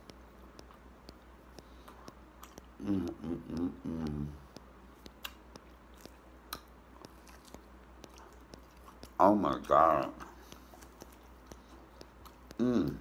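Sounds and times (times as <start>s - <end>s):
chewing and lip-smacking: 0.0s - 13.0s
small mouth clicks: 0.0s - 13.0s
man humming with enjoyment: 2.8s - 4.4s, 12.6s - 13.0s.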